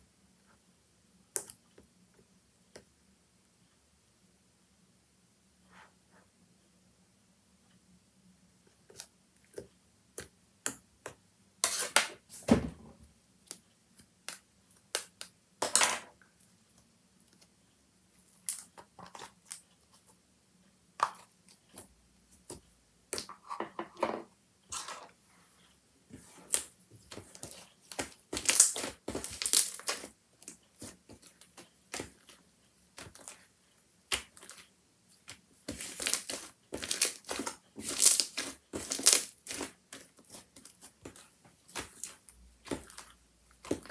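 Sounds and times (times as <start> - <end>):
slime crackling and popping: 28.0 - 30.1, 35.7 - 40.4.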